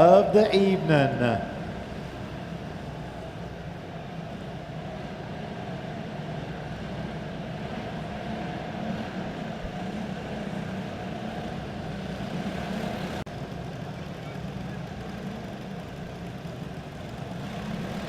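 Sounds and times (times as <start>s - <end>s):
small race car engines running: 1.8s - 18.0s.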